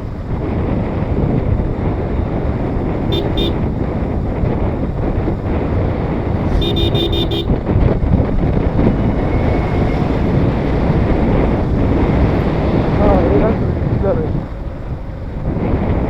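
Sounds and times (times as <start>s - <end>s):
motorcycle riding: 0.0s - 16.0s
wind on microphone: 0.0s - 16.0s
vehicle horn tooting: 3.0s - 3.8s, 6.4s - 7.8s.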